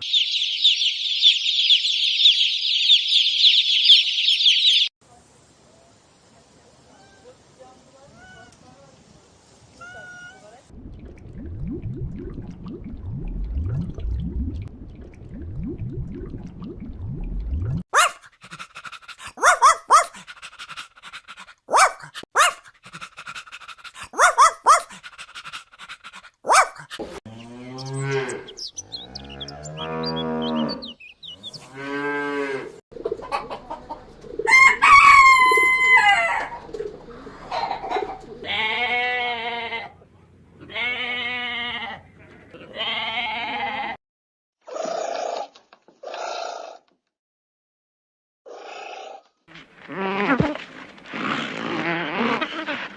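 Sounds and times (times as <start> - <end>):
cow mooing: 27.3 - 32.8
fowl clucking: 33.0 - 38.5
rooster crowing: 34.5 - 36.6
sheep bleating: 38.4 - 40.0, 40.6 - 44.0.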